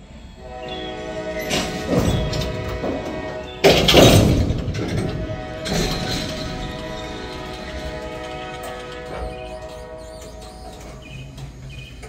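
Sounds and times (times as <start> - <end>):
freight train clanking and rattling: 0.0 - 12.0.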